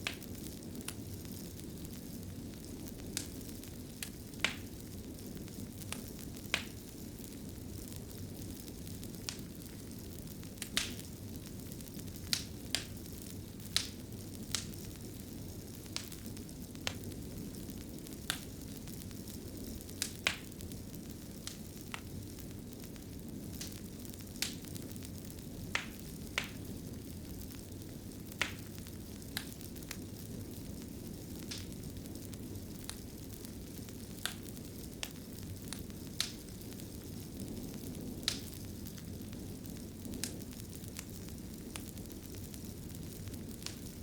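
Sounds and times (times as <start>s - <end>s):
fireplace fire crackling: 0.0s - 44.0s.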